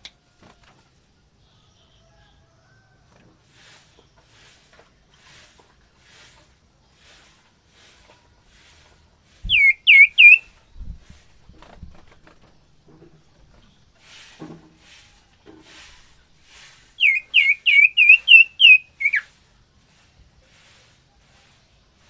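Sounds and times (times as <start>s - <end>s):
bird whistled notes: 9.4s - 10.5s, 17.0s - 19.3s.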